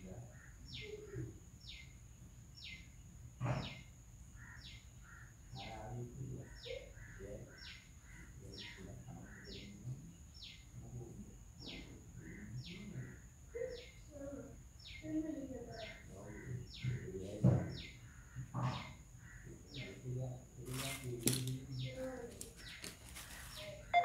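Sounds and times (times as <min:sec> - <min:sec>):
faint chirps: 0:00.0 - 0:24.0.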